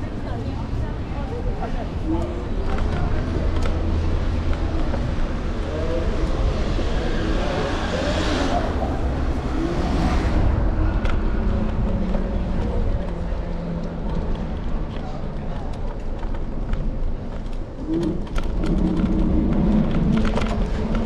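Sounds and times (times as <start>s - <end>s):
city street traffic: 0.0s - 21.0s
wind rumble on microphone: 0.0s - 21.0s
car passing: 1.4s - 14.9s.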